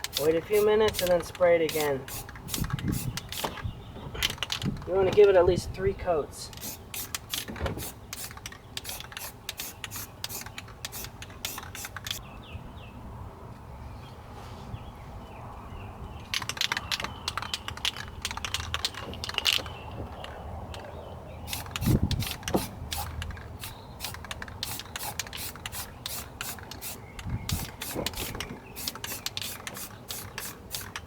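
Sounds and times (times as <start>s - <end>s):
spray can ball rattling: 0.0s - 3.5s, 6.6s - 12.2s, 21.5s - 31.0s.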